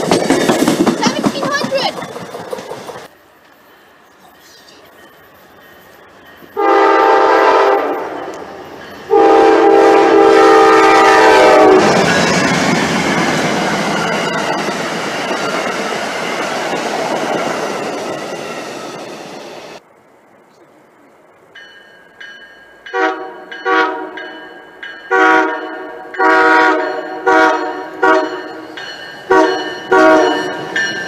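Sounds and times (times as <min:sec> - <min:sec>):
train wheels rushing on rails: 0:00.0 - 0:19.8, 0:21.4 - 0:31.0
train air horn: 0:06.6 - 0:08.3, 0:09.1 - 0:12.0, 0:22.9 - 0:24.2, 0:25.1 - 0:28.4, 0:29.3 - 0:30.5.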